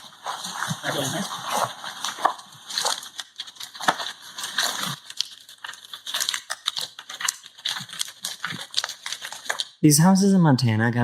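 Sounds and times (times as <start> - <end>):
burning wood crackling and popping: 0.0 - 9.8.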